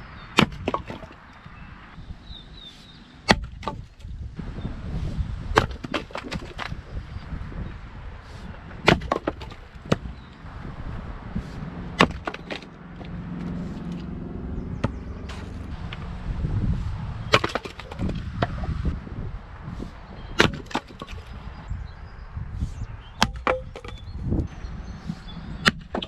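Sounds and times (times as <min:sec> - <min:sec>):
wood splitting: 0:00.3 - 0:01.5, 0:03.2 - 0:04.2, 0:05.4 - 0:07.0, 0:08.3 - 0:11.0, 0:11.9 - 0:14.1, 0:14.8 - 0:16.2, 0:17.3 - 0:18.8, 0:20.3 - 0:21.4, 0:23.2 - 0:24.4, 0:25.6 - 0:26.0
axe strikes on wood: 0:00.4 - 0:01.1, 0:03.3 - 0:03.9, 0:05.6 - 0:06.8, 0:08.8 - 0:10.3, 0:12.0 - 0:12.7, 0:14.8 - 0:15.5, 0:17.3 - 0:18.6, 0:20.4 - 0:21.3, 0:23.2 - 0:24.0, 0:25.6 - 0:26.0.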